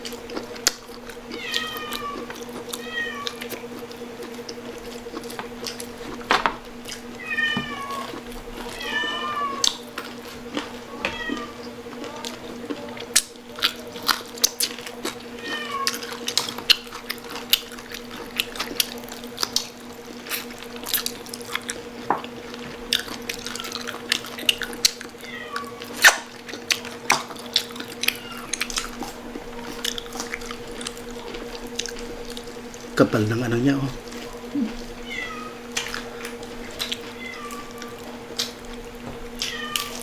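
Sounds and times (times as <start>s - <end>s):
crunching crispy pork skin: 0.0s - 40.0s
steady low hum: 0.0s - 40.0s
cat meowing: 1.3s - 3.5s, 7.2s - 9.8s, 10.8s - 12.4s, 15.4s - 16.3s, 25.1s - 26.1s, 28.0s - 28.9s, 34.6s - 35.8s, 36.8s - 38.2s, 39.4s - 40.0s.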